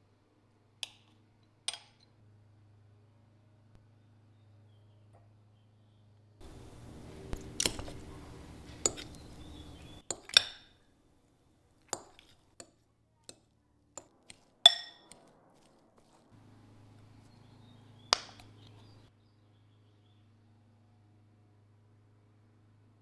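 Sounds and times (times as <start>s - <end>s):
low steady hum: 6.4s - 10.4s
dishes clinking: 6.4s - 10.7s, 14.7s - 15.2s.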